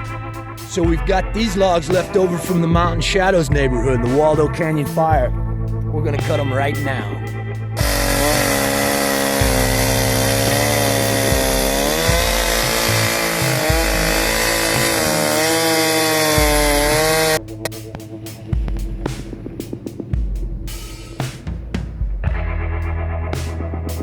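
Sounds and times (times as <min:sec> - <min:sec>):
chainsaw cutting through log: 0:07.8 - 0:17.4.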